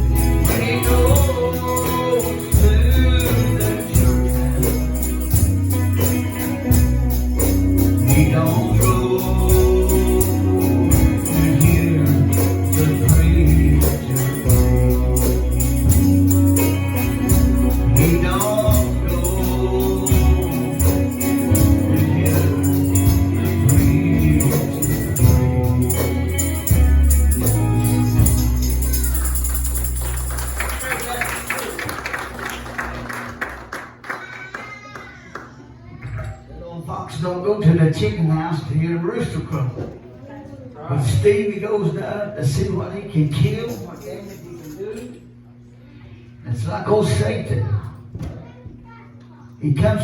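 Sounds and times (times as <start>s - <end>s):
gospel singing: 0.0s - 7.2s, 7.8s - 31.2s
bass line: 0.0s - 31.2s
tambourine beat: 0.0s - 32.5s.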